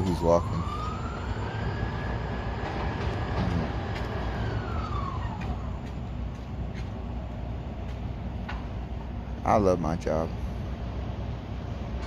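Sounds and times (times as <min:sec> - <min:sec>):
siren wailing: 0:00.0 - 0:06.0
low vehicle rumble: 0:00.0 - 0:12.0.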